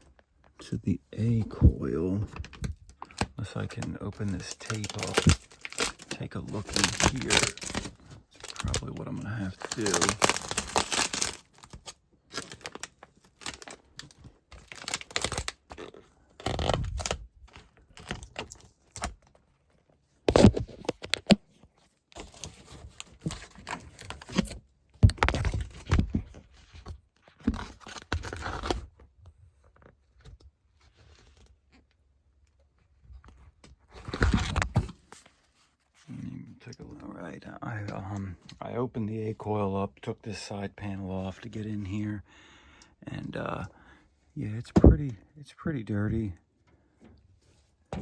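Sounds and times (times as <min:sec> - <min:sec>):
tape ripping: 0:02.6 - 0:13.9, 0:14.6 - 0:17.2, 0:20.3 - 0:21.4.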